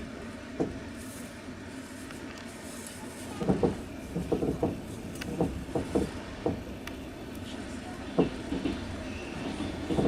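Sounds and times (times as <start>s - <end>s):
train rolling rumble: 0.0s - 10.0s
train wheels clacking: 3.4s - 6.7s, 8.1s - 10.0s.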